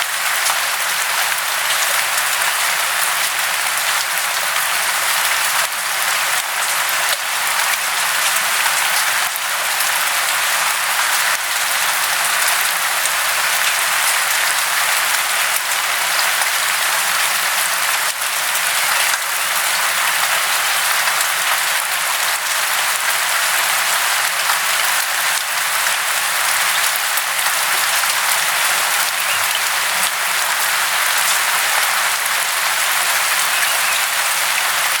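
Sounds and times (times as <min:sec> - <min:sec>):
falling water hissing: 0:27.4 - 0:35.0.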